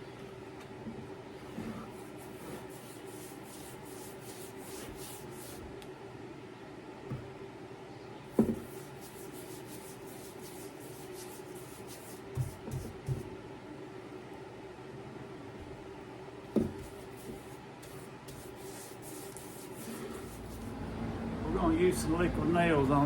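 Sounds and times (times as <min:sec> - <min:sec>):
applicator rubbing on wood: 0:01.5 - 0:05.6, 0:08.6 - 0:12.8, 0:16.9 - 0:20.8
low hum: 0:20.2 - 0:23.0.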